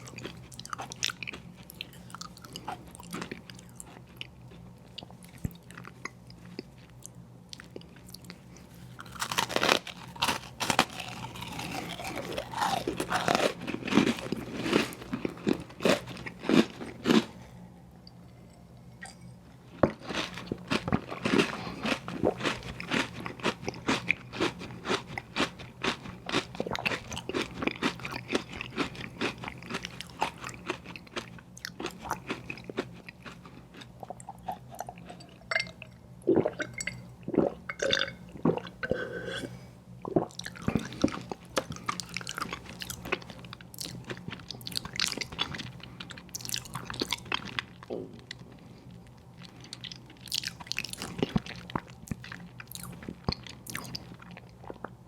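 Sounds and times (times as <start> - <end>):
steady chewing: 0.0 - 17.4, 19.8 - 35.6, 40.3 - 55.0
faint low hum: 0.0 - 55.0
crunching bites: 9.0 - 17.3, 20.0 - 31.2.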